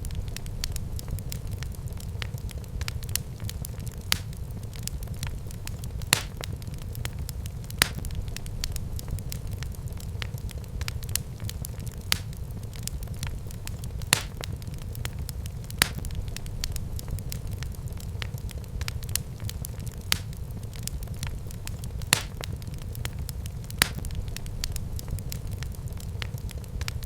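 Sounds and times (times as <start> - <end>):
fireplace fire crackling: 0.0 - 27.0.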